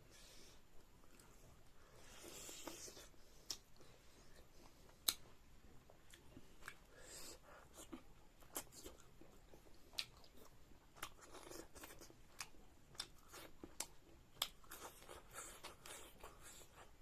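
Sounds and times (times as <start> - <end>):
person chewing and crunching food: 1.0 - 17.0
mouth clicks and smacks: 5.0 - 5.3.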